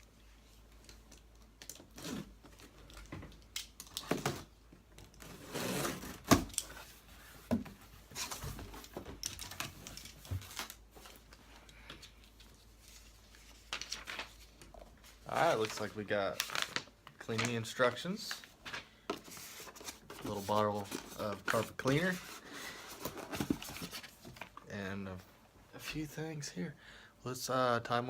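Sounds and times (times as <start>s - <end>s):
cardboard rustling and tearing: 5.2s - 7.0s, 15.3s - 16.9s, 19.2s - 24.5s.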